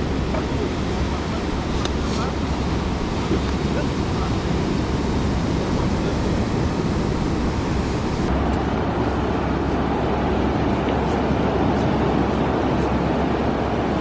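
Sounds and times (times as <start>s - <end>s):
surf washing on beach: 0.0s - 14.0s
wind buffeting microphone: 0.0s - 14.0s.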